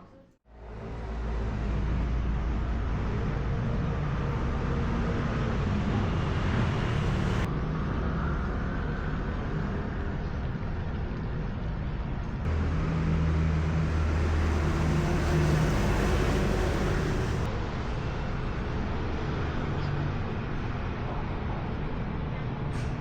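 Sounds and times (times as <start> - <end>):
road noise: 0.4 - 23.0
vehicle engine hum: 0.5 - 17.8.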